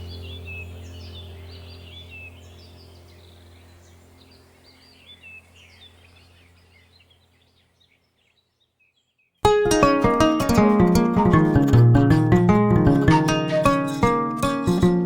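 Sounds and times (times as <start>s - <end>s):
birds chirping and twittering: 0.0s - 9.5s.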